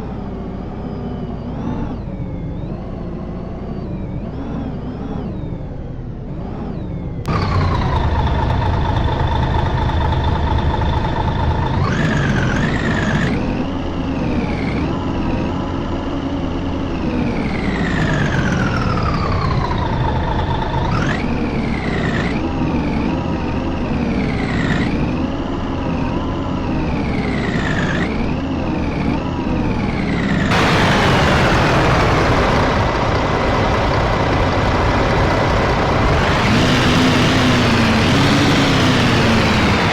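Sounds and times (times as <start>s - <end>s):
bus diesel engine rumble: 7.3s - 14.0s, 29.9s - 39.9s
strong hiss: 30.5s - 36.5s.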